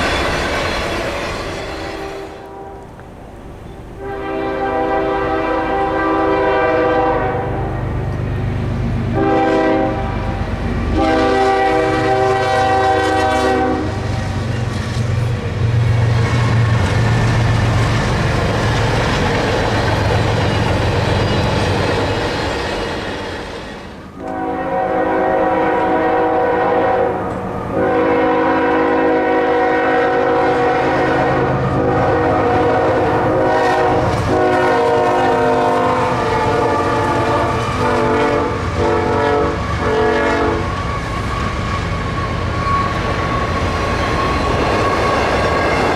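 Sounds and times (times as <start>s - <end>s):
train rumble and wheel clatter: 0.0s - 45.9s
locomotive air horn blasts: 1.8s - 3.0s, 4.0s - 7.9s, 9.1s - 14.1s, 24.1s - 41.5s.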